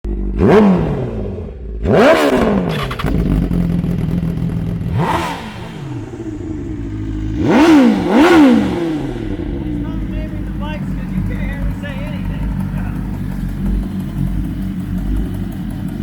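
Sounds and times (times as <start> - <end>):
motorcycle engine revving: 0.0 - 16.0
exhaust crackles: 0.1 - 16.0.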